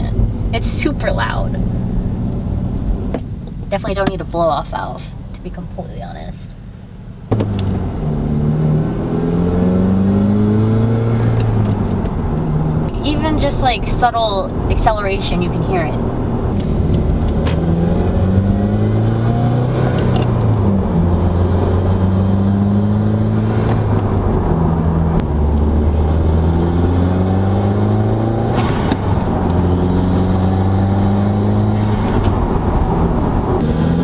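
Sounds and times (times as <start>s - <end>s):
car engine accelerating: 0.0s - 6.2s, 6.9s - 34.0s
loud engine intake sound: 11.1s - 17.5s.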